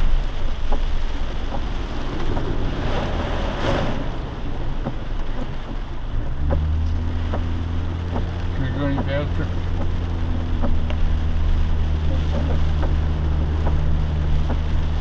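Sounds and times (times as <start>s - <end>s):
engine low hum: 0.0s - 15.0s
water spraying from tyres: 0.0s - 15.0s.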